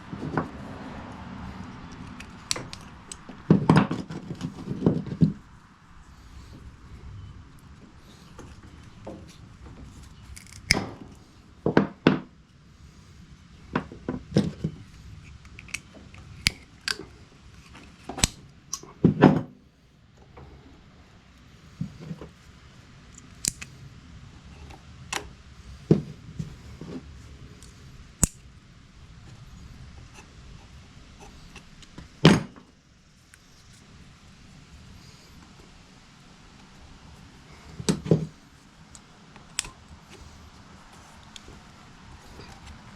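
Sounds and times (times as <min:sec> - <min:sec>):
tools clicking and snapping: 0:01.9 - 0:03.4, 0:10.3 - 0:11.0, 0:15.3 - 0:18.9, 0:23.2 - 0:23.8, 0:27.6 - 0:28.5.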